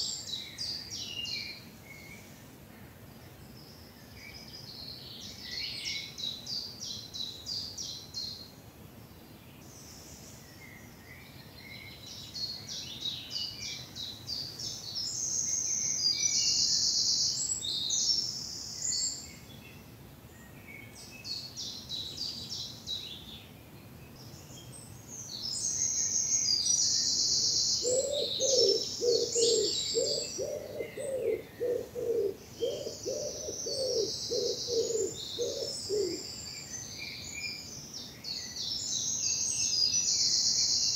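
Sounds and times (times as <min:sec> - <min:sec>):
songbirds trilling: 0:20.8 - 0:40.9
low repeating bird call: 0:27.3 - 0:36.3.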